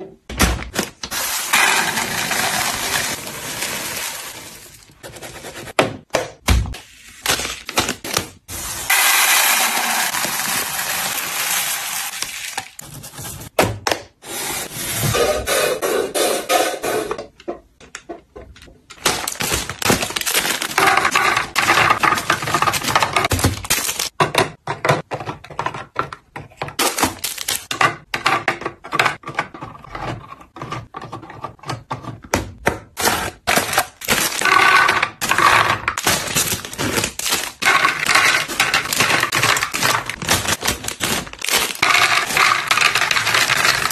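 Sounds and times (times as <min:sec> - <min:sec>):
containers clinking and knocking: 0:19.2 - 0:26.1, 0:33.5 - 0:43.9.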